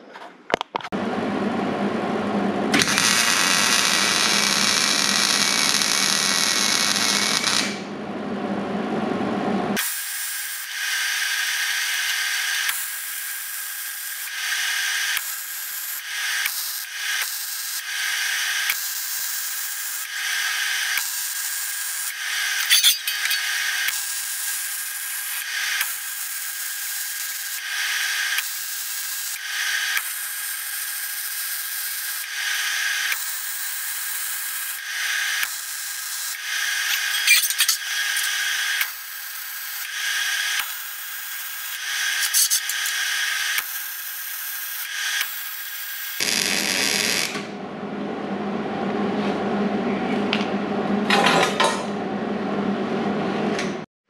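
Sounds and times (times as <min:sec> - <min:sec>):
welding arc crackling and hissing: 0:02.7 - 0:07.9, 0:09.8 - 0:47.5.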